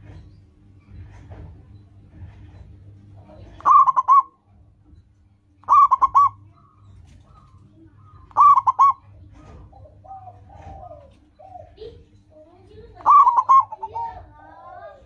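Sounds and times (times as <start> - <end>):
dove cooing: 3.2 - 4.5, 5.6 - 15.0.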